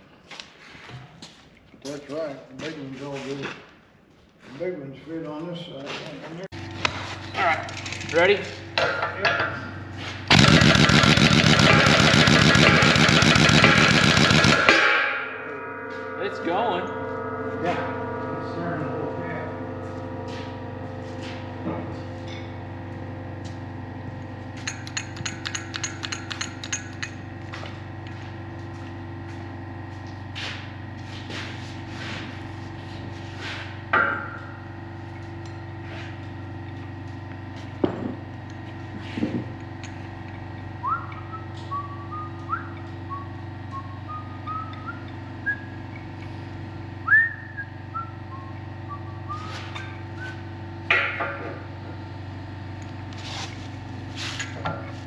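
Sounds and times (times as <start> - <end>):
shop hum: 0.0 - 55.0
metal parts clinking and knocking: 7.2 - 9.5, 24.6 - 27.2.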